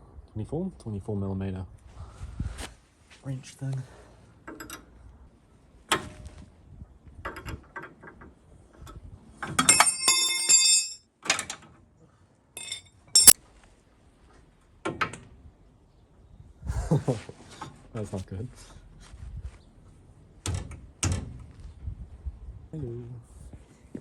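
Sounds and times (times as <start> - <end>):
metal tools clinking on bolts: 4.5 - 4.9, 9.4 - 11.5, 12.6 - 13.4
metal piece clattering and ringing: 9.5 - 11.0, 12.6 - 13.4
sharp metal clank: 9.6 - 11.0, 12.6 - 13.4.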